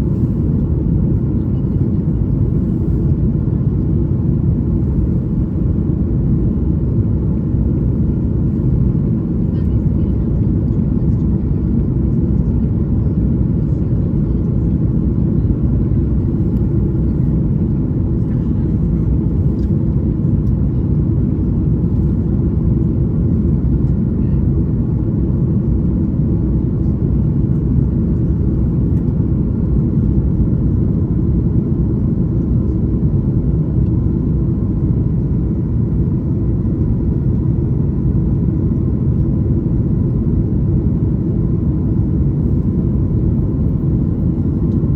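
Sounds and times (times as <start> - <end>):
airliner cabin engine rumble: 0.0 - 44.9.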